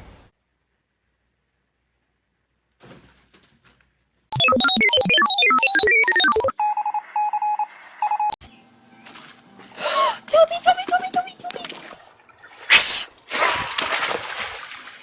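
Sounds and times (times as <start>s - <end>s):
electronic beeps: 4.3s - 8.4s
electronic ringtone melody: 4.3s - 8.4s.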